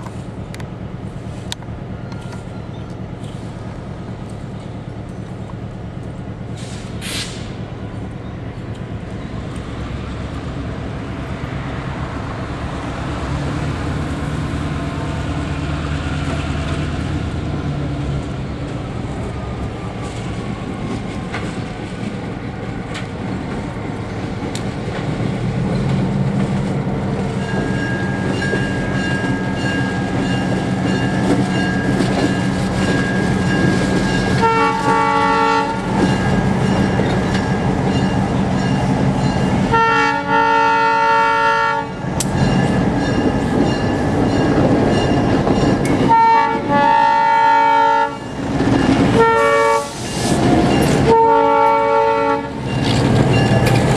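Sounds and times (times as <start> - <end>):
diesel locomotive running: 0.0 - 53.9
train horn blasts: 34.3 - 36.0, 39.7 - 42.0, 46.0 - 48.3, 49.1 - 50.0, 51.0 - 52.7.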